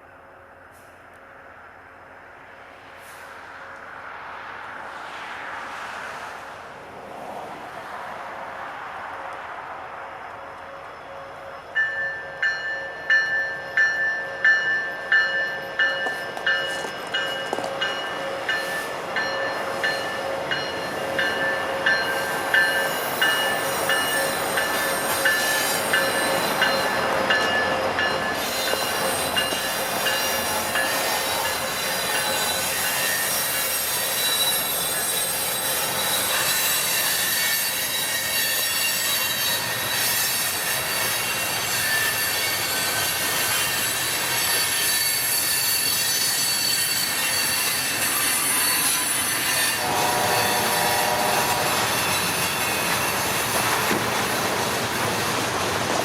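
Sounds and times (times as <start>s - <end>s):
rumble of moving train cars: 0.0s - 56.0s
wheels squealing on rails: 0.0s - 56.0s
train bell ringing: 11.0s - 53.5s.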